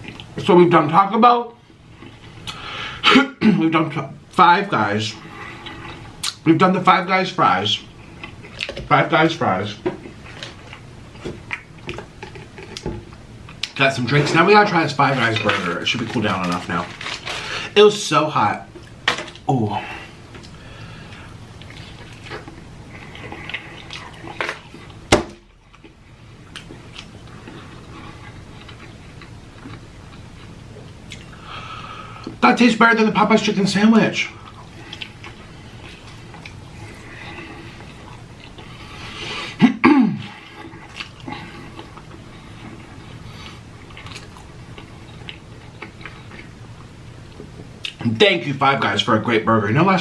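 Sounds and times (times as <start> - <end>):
packaging rustling: 15.1 - 17.8
close chewing mouth sounds: 20.4 - 25.0, 25.6 - 31.4, 40.4 - 48.0.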